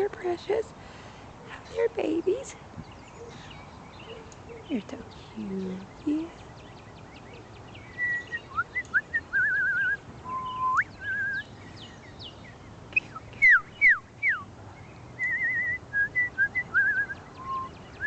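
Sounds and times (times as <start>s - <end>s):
small birds chirping: 1.4s - 18.0s
person whistling bird-like trills: 7.9s - 11.5s, 13.0s - 14.4s, 15.2s - 17.8s.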